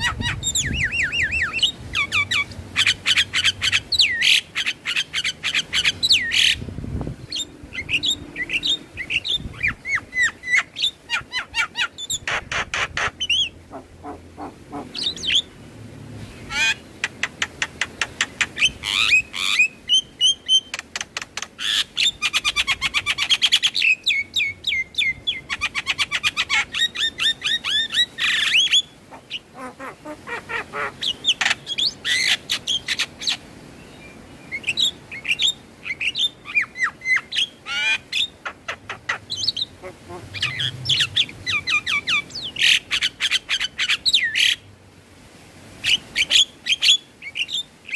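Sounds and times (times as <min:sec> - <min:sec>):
bird chattering and whistling: 0:00.0 - 0:06.6, 0:07.2 - 0:15.5, 0:34.6 - 0:44.6.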